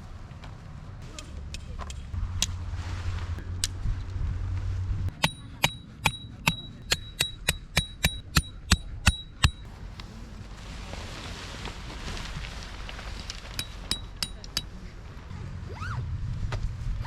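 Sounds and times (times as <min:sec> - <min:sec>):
low hum: 0:01.2 - 0:17.0
hammer striking metal: 0:05.1 - 0:09.7, 0:13.6 - 0:14.7.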